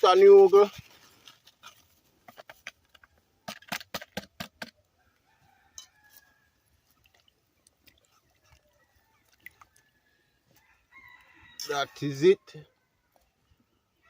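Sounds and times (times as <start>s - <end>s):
faint rooster crowing: 5.0s - 6.9s, 8.4s - 14.0s.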